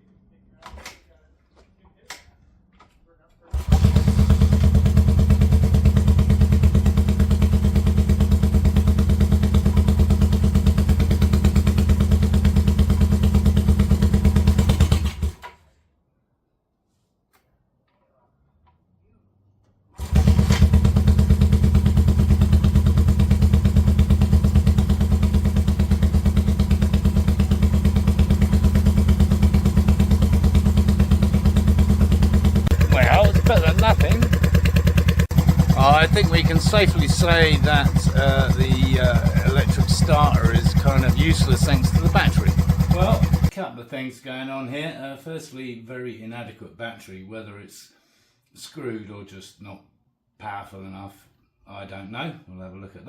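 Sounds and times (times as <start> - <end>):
motorcycle engine fast idle: 3.6 - 15.4, 20.0 - 43.5.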